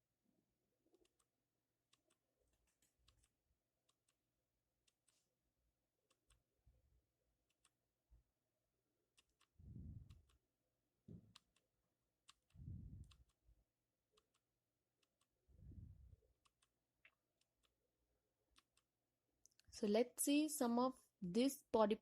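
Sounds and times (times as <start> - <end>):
soft low rumbling: 9.6 - 10.3, 12.6 - 13.2, 15.6 - 16.2.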